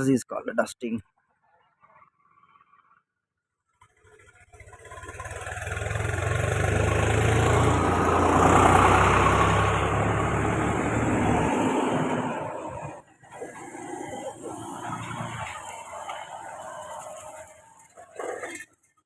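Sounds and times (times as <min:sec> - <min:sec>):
vehicle engine running: 0:01.4 - 0:19.0.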